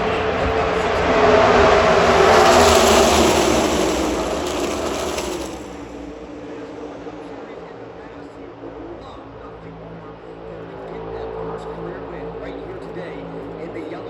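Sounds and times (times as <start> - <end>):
race cars passing at full speed: 0.0 - 7.3.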